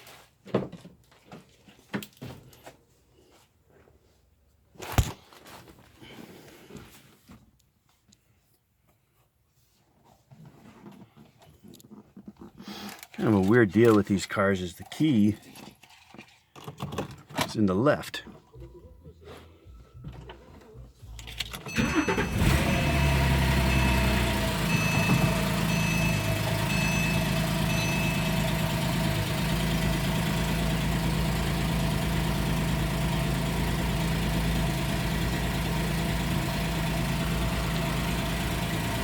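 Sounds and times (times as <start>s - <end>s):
car engine starting and idling: 20.2s - 39.0s
electronic warning beeps: 21.7s - 28.4s.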